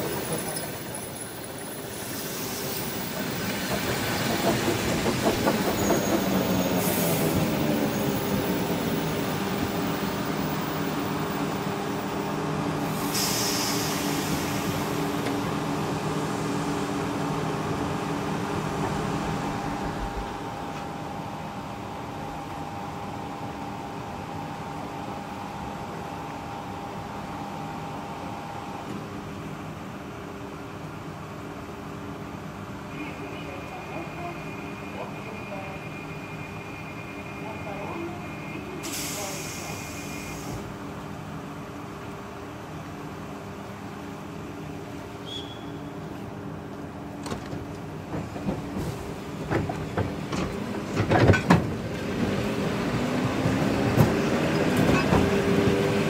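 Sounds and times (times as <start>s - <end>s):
train rolling noise: 0.0s - 45.3s, 45.9s - 56.0s
train hum: 0.0s - 56.0s.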